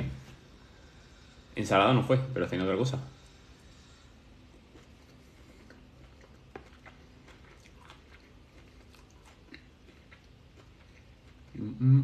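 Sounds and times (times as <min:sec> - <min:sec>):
person chewing salad: 0:03.2 - 0:11.8.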